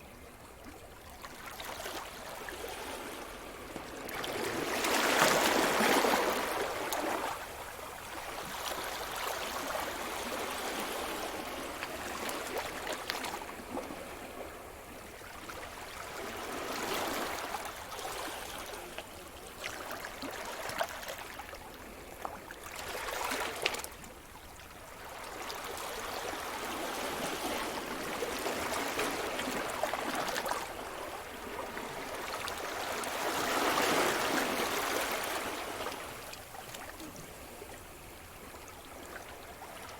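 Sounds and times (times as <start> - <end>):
waves breaking on shore: 2.2 - 21.4, 25.0 - 39.9.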